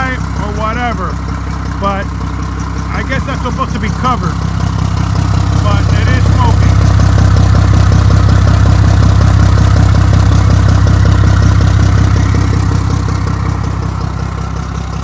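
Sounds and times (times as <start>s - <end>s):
truck diesel engine idling: 0.0s - 15.0s.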